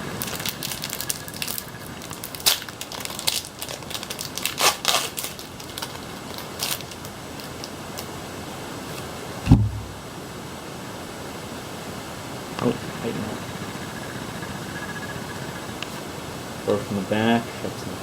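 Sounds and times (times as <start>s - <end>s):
foil wrapper crinkling and tearing: 0.2s - 8.1s.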